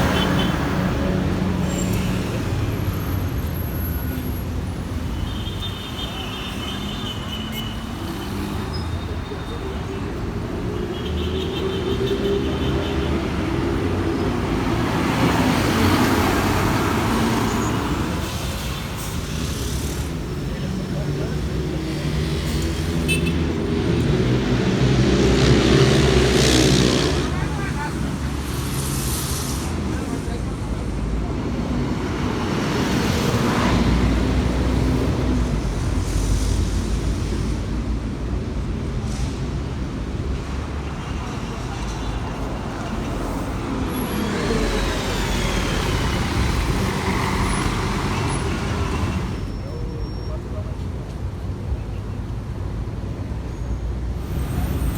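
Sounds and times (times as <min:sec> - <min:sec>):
road traffic: 0:00.0 - 0:54.9
heavy vehicle engine rumble: 0:12.2 - 0:54.9
vehicle passing close: 0:19.2 - 0:30.4
brief high hisses: 0:28.3 - 0:30.0.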